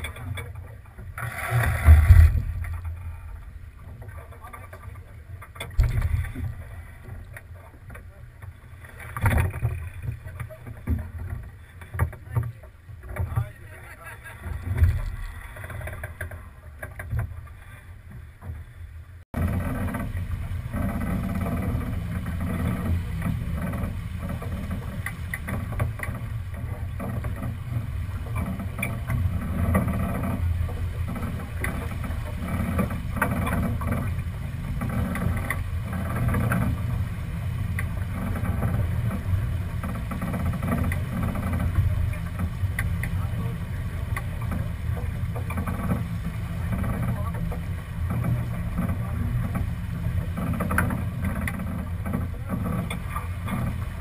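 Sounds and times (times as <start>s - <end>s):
wind and water noise: 0.0s - 54.0s.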